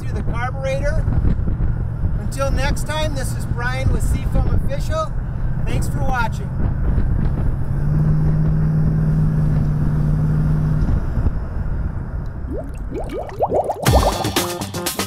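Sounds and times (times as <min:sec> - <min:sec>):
road and wind noise: 0:00.0 - 0:13.7.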